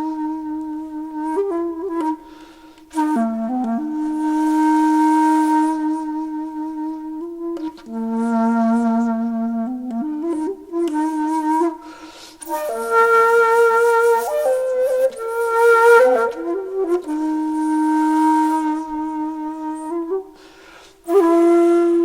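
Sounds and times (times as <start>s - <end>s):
solo flute-like wind instrument: 0.0s - 22.0s
breath noise: 2.2s - 2.9s, 11.8s - 12.4s, 20.3s - 21.1s.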